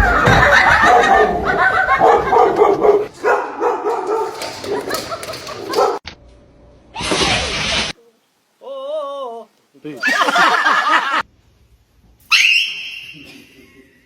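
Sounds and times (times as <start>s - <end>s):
dog barking and yipping: 2.0s - 6.0s.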